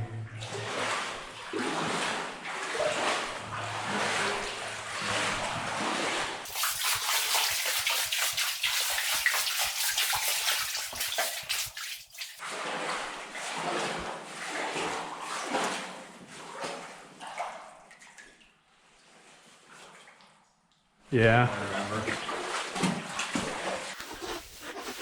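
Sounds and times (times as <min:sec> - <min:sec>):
footsteps splashing through water: 0:06.5 - 0:12.4.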